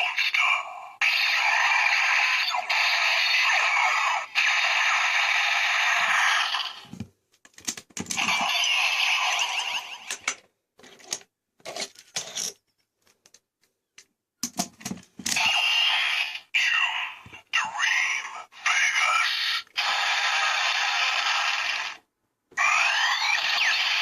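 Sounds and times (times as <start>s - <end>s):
toy electronic sound effects: 0.0s - 6.9s, 8.2s - 10.3s, 15.4s - 22.0s, 22.6s - 24.0s.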